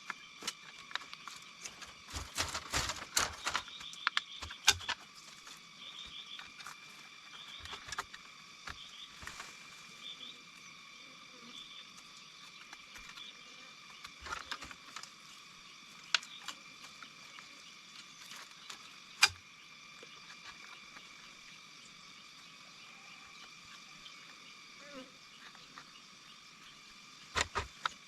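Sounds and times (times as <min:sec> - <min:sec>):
sharp clicks and knocks: 0:00.0 - 0:05.0, 0:27.4 - 0:28.0
insect drone: 0:00.0 - 0:28.0.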